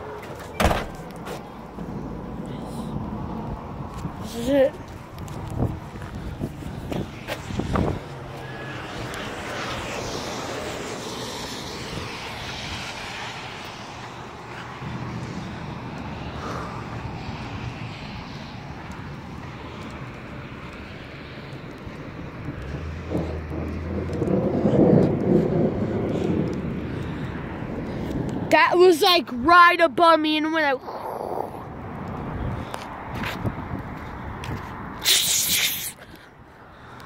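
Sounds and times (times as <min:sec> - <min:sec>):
thunder rumbling: 0:20.2 - 0:28.6.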